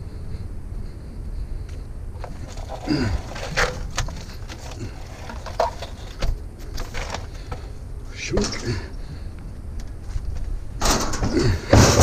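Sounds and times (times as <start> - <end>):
steady low rumble: 0.0 - 12.0
scrap metal knocks and clunks: 2.2 - 8.9, 10.8 - 12.0.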